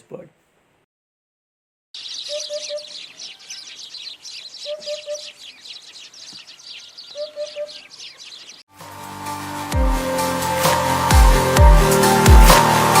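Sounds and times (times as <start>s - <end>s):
hoopoe calling: 2.0s - 8.6s
small birds chirping: 2.0s - 8.7s.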